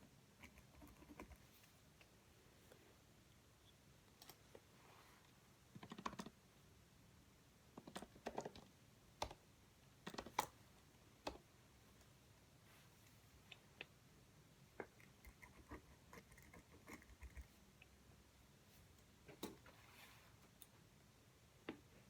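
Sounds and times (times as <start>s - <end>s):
typing on computer keyboard: 5.8s - 6.4s.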